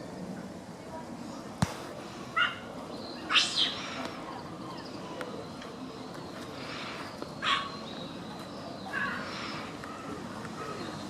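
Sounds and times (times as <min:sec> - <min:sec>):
steady background noise: 0:00.0 - 0:11.0
high-pitched bird calls: 0:03.0 - 0:04.0.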